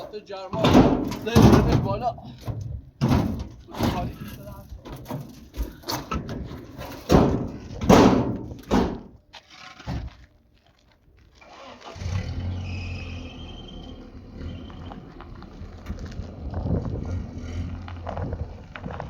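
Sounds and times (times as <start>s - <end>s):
knocks and thuds: 0.6s - 9.2s.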